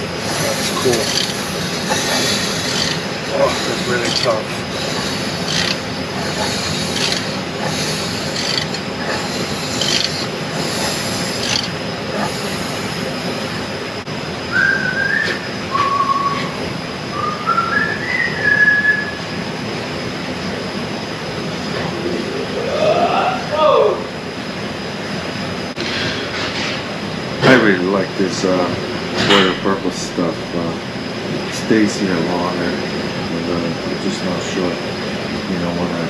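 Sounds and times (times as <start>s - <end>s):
workshop background noise: 0.0s - 36.0s
scraping strokes: 0.1s - 12.9s
person whistling notes: 14.5s - 16.6s, 17.2s - 19.2s.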